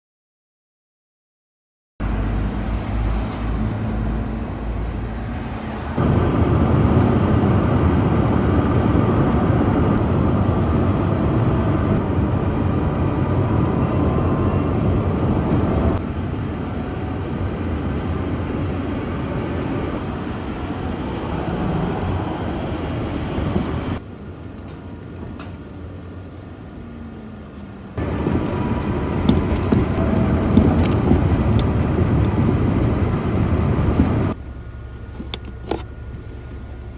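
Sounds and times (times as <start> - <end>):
car road and running noise: 2.0 - 36.9
rapid high-pitched ticking: 3.9 - 24.0.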